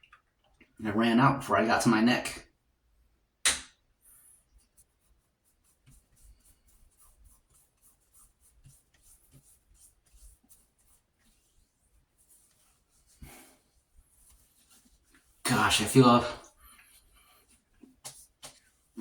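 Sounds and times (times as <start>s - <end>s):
fingertips rubbing skin: 4.6s - 18.9s.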